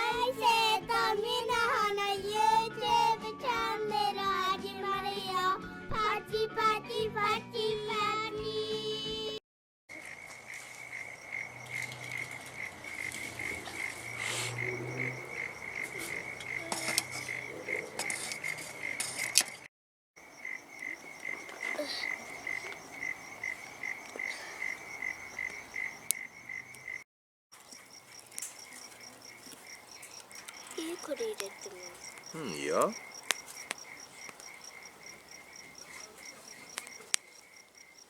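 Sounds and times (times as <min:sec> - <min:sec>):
frogs calling in chorus: 0:09.9 - 0:27.0, 0:27.6 - 0:38.0
campfire popping and crackling: 0:10.0 - 0:18.6, 0:19.2 - 0:27.0, 0:27.6 - 0:38.0.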